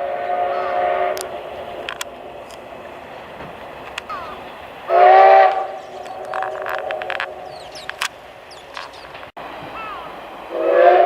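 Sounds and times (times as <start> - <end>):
steam locomotive chime whistle: 0.0 - 1.8, 4.2 - 7.9, 9.9 - 11.0.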